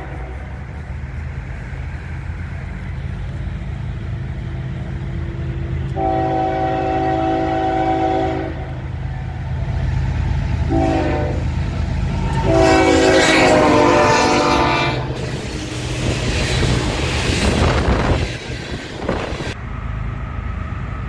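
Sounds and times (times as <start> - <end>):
train air horn blasts: 0.0 - 0.6, 5.8 - 8.9, 10.6 - 16.2
train rumbling: 0.0 - 21.0.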